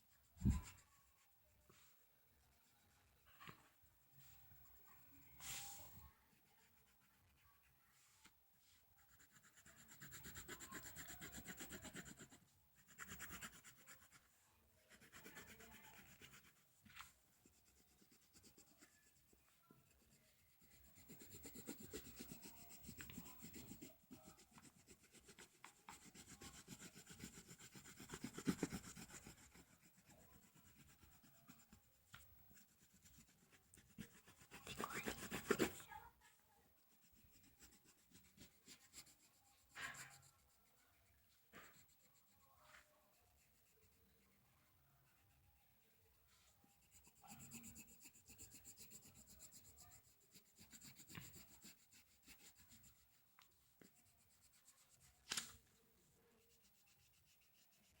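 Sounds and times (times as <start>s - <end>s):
colored pencil shading on paper: 0.0s - 58.0s.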